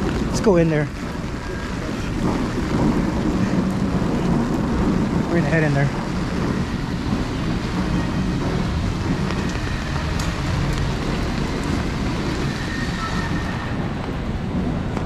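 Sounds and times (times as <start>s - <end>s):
low rumble on microphone: 0.0s - 15.0s
rain pattering: 0.0s - 15.0s.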